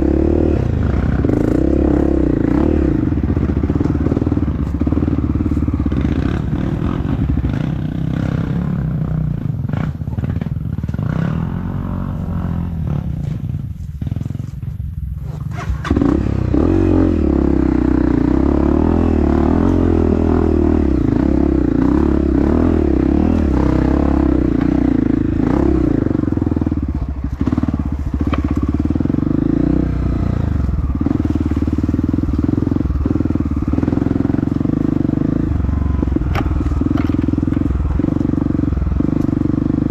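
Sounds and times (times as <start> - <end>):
dirt bike engine under varying throttle: 0.0 - 39.9.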